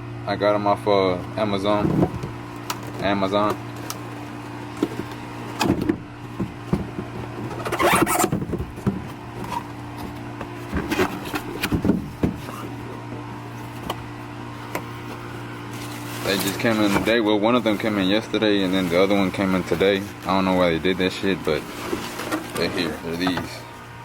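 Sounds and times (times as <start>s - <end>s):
steady low hum: 0.0s - 24.0s
rustling and light knocks: 21.5s - 23.6s.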